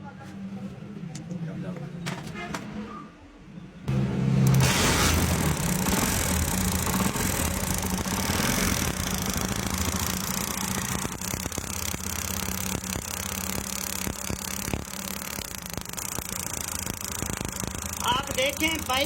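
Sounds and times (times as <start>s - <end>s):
sharp clicks: 5.2s - 19.0s
motorbike engine idling: 5.3s - 19.0s.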